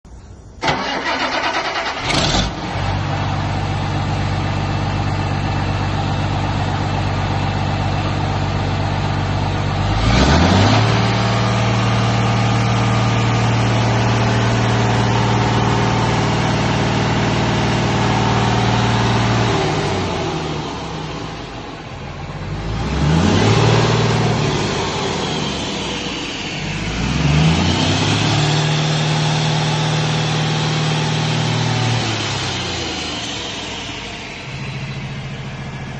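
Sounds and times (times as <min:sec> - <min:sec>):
diesel engine starting and idling: 0:00.2 - 0:35.9
diesel engine revving: 0:00.6 - 0:35.9.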